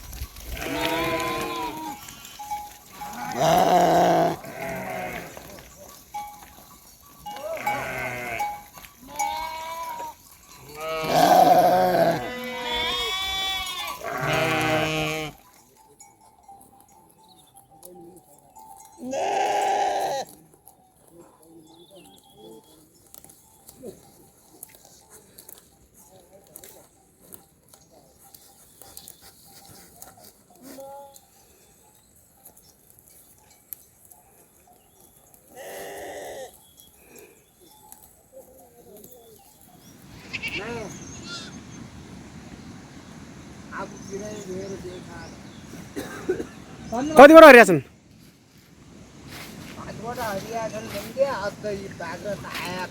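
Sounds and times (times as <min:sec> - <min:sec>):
sheep and goats bleating: 0:00.2 - 0:15.5, 0:18.8 - 0:20.4, 0:35.5 - 0:37.3, 0:40.1 - 0:41.7.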